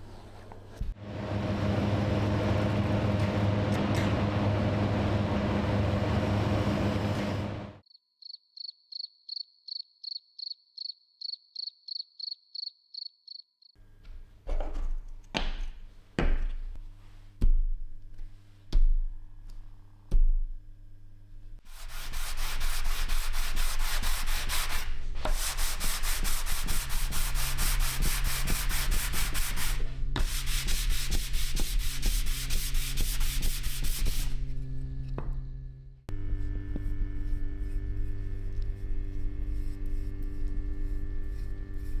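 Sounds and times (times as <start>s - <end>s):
low hum: 1.0s - 7.8s, 34.3s - 42.0s
machine running: 1.0s - 7.8s.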